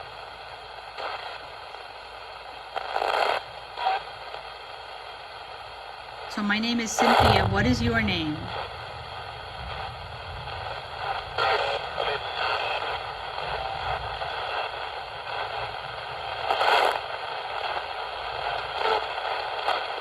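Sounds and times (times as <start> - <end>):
radio static hiss: 0.0 - 20.0
snatches of broadcast sound: 2.8 - 4.4, 6.3 - 8.8, 10.6 - 17.8.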